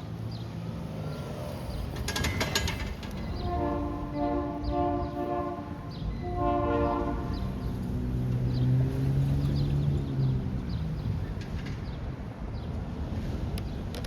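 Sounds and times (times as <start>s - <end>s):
locomotive air horn blasts: 3.4s - 7.6s.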